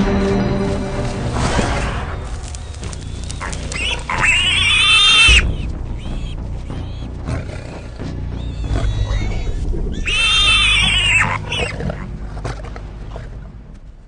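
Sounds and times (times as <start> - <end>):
warthog squealing: 3.1 - 12.1.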